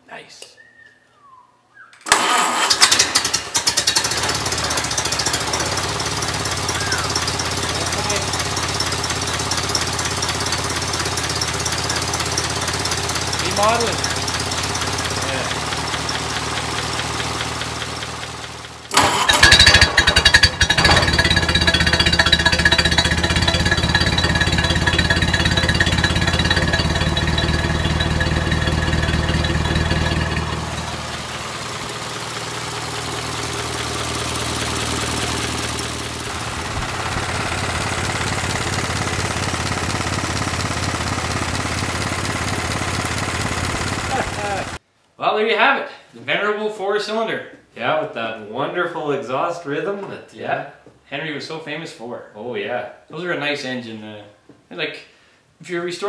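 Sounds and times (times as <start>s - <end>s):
engine running: 2.1s - 44.8s
engine knocks: 2.9s - 44.8s.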